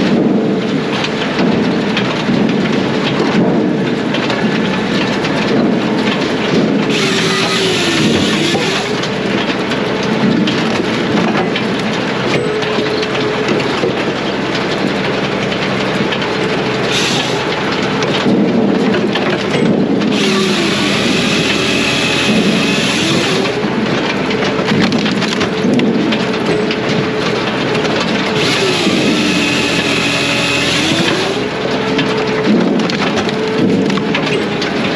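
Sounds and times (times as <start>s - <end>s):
firewood processor running: 0.0s - 34.9s.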